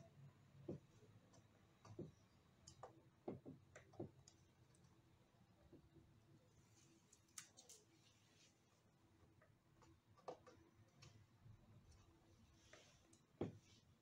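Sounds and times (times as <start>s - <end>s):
faint clicks and taps of tape: 0.6s - 5.0s, 9.2s - 12.0s, 12.6s - 13.8s.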